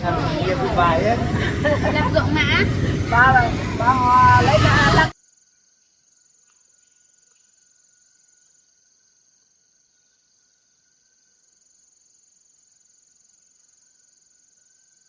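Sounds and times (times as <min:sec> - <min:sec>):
crickets chirring: 0:05.1 - 0:15.0.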